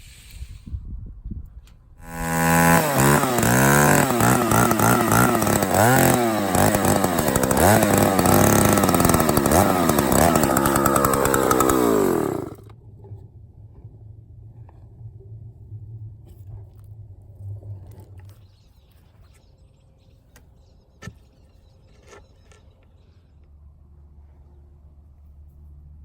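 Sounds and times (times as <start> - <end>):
chainsaw revving: 2.0 - 12.7.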